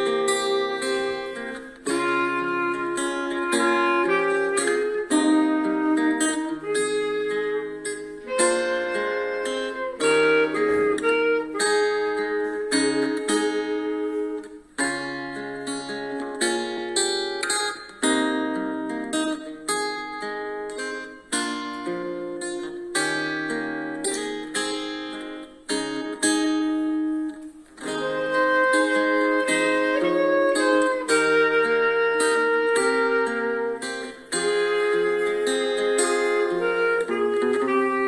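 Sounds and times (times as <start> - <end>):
clarinet slow melody: 0.0 - 38.0
plucked strings accompaniment: 0.0 - 38.0.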